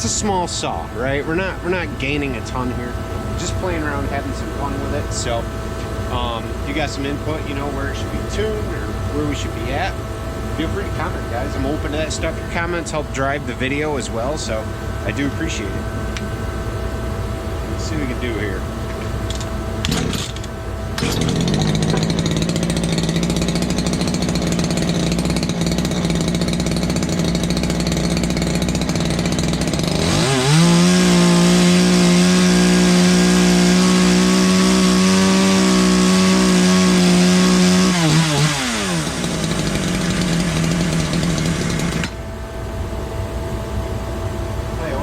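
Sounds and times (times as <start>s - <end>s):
chainsaw revving: 6.1s - 10.0s, 19.3s - 42.2s.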